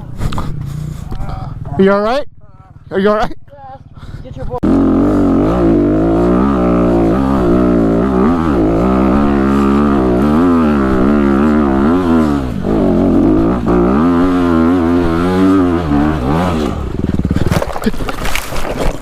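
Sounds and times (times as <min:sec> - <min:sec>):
dirt bike engine revving: 0:04.6 - 0:18.8.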